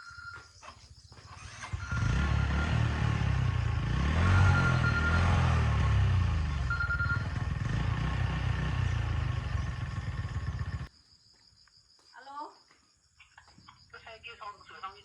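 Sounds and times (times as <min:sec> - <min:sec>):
motorbike engine running: 0:01.3 - 0:10.9.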